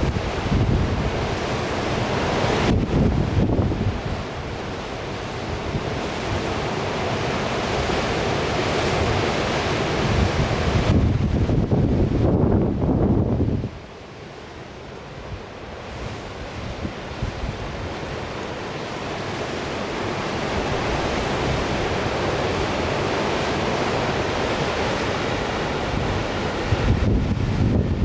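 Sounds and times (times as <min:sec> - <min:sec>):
strong wind buffeting microphone: 0:00.0 - 0:04.6, 0:09.9 - 0:13.8, 0:15.2 - 0:18.3, 0:20.5 - 0:28.0
sea surf rushing: 0:00.0 - 0:28.0.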